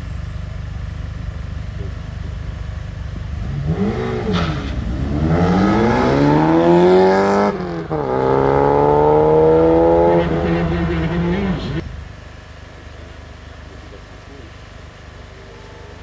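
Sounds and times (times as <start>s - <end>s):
car engine revving and accelerating: 3.2s - 11.9s.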